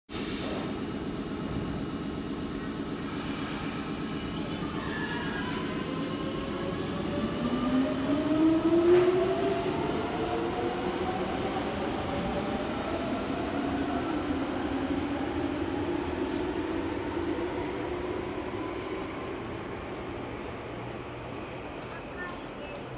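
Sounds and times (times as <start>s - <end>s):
subway train rumbling: 0.1s - 22.9s.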